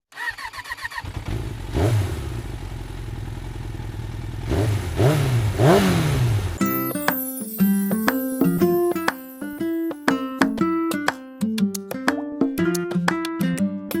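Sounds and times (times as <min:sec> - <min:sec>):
motorcycle engine revving: 0:00.1 - 0:06.6.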